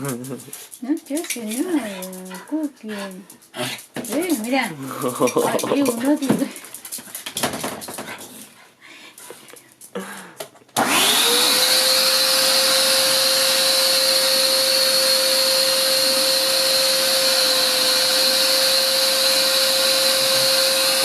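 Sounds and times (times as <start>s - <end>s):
vacuum cleaner motor whining: 10.8s - 21.0s.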